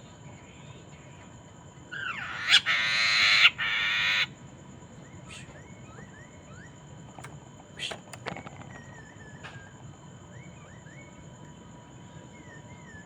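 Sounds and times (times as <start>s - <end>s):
bird harsh raspy call: 1.9s - 4.3s
faint rising whistles: 5.0s - 6.9s, 8.6s - 13.0s.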